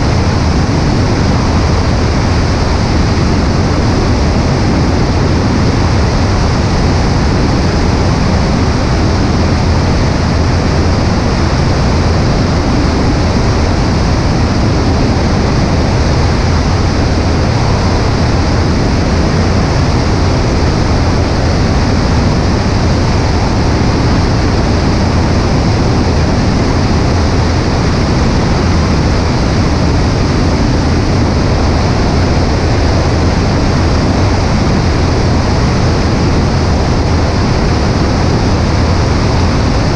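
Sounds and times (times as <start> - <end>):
light aircraft engine drone: 0.0 - 39.9
wind rushing on microphone: 0.0 - 39.9.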